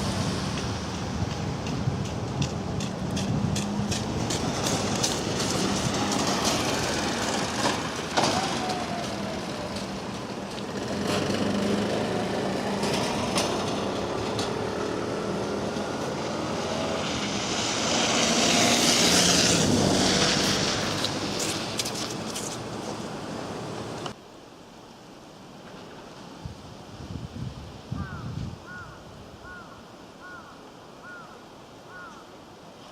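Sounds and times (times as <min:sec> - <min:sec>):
train running with low hum: 0:00.0 - 0:18.1
train clicks and squeals: 0:03.2 - 0:11.0.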